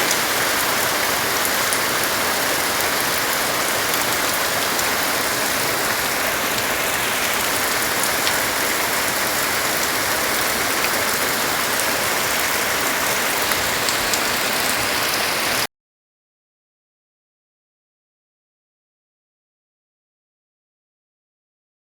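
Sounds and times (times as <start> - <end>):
rain drop ticks: 0.0 - 15.2
heavy rain pouring: 0.0 - 15.7.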